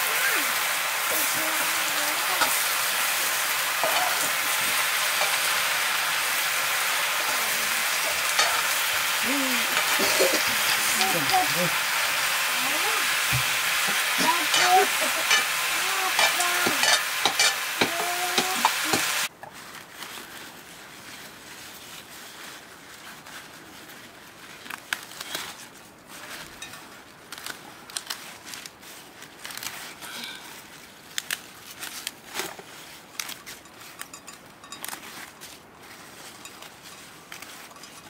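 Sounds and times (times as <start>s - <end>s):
greens sizzling in a wok: 0.0s - 19.3s
ladle stirring in a wok: 0.0s - 19.3s, 36.2s - 38.0s
leaves rustling and snapping: 18.0s - 38.0s.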